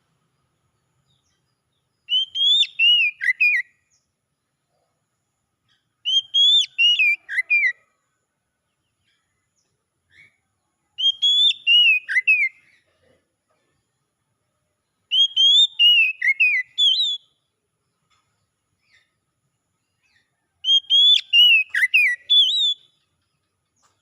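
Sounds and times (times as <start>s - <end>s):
bird whistling song: 2.0s - 4.1s, 6.0s - 7.8s, 11.0s - 12.8s, 15.0s - 17.5s, 20.0s - 23.2s.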